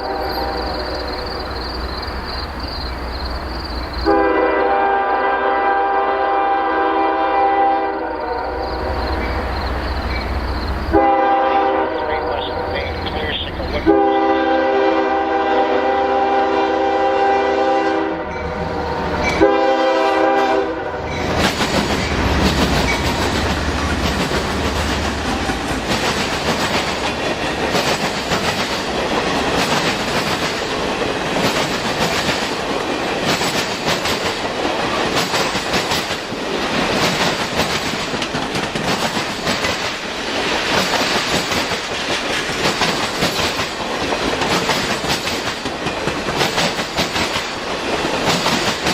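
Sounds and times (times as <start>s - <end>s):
locomotive air horn: 0.0s - 1.2s, 4.0s - 8.7s, 10.9s - 13.0s, 13.8s - 18.3s, 19.4s - 21.1s
train wheels knocking over rail joints: 21.1s - 48.9s.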